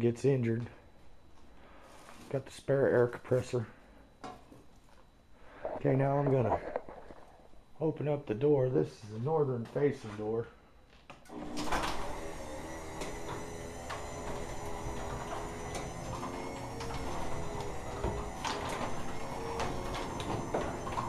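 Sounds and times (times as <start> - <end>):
motorized door opening: 11.2 - 21.0
door rattling and clicking: 11.4 - 21.0.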